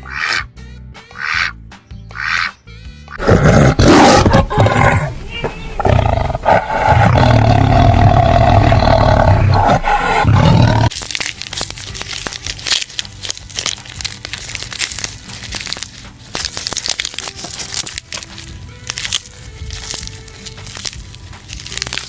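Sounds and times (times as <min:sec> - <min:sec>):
crackling and clicking: 0:05.4 - 0:22.0
loud long animal roar: 0:05.8 - 0:10.9.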